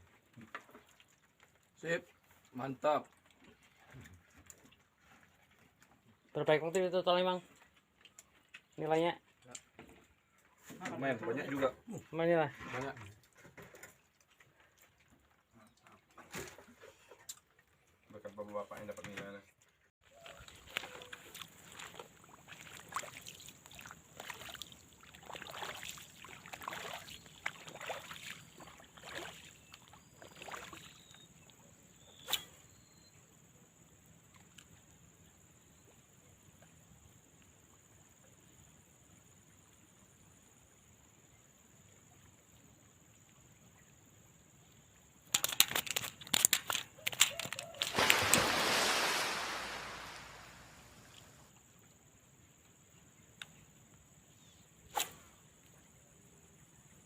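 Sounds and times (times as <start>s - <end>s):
water sloshing and splashing: 0.2s - 5.8s, 20.0s - 31.2s, 45.3s - 51.5s
loud rush of water: 47.8s - 51.4s.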